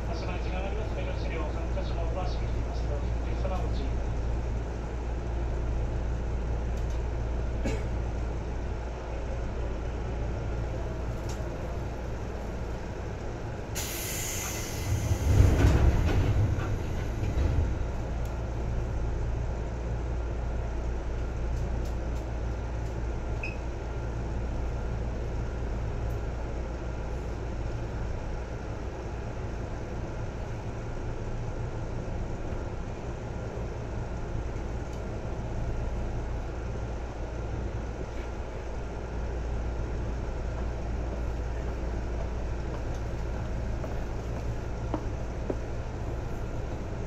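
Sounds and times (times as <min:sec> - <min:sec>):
electric train rumbling on track: 0:00.0 - 0:47.0.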